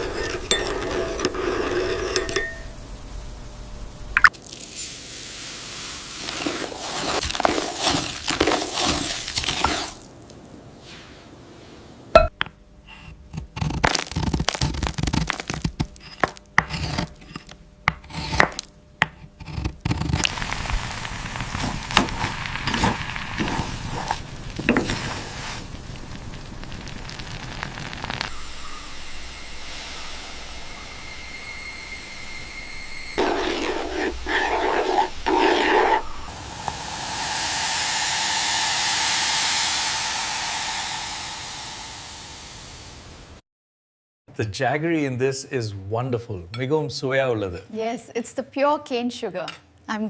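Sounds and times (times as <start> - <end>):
utensils scraping cookware: 0.0 - 2.7, 6.3 - 10.0, 33.2 - 36.1.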